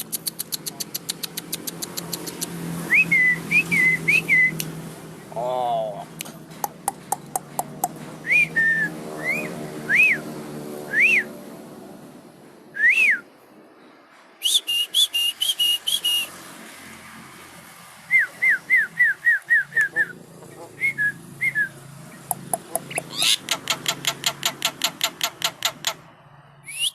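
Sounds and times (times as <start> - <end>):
bird clicks: 0.0 - 2.6, 22.2 - 26.0
harsh bird chattering: 0.0 - 2.6, 19.6 - 21.1, 22.2 - 26.0
bird whistled notes: 2.9 - 4.6, 26.7 - 26.9.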